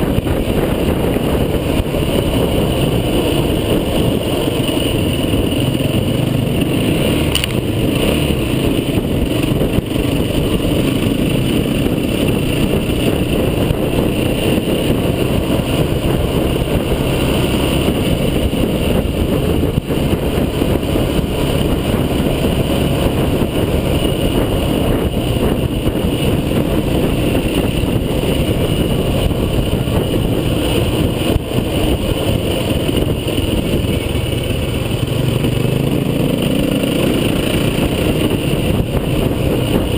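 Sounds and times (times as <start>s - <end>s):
tyres rolling noise: 0.0s - 39.9s
vehicle engine driving off-road: 0.0s - 39.9s.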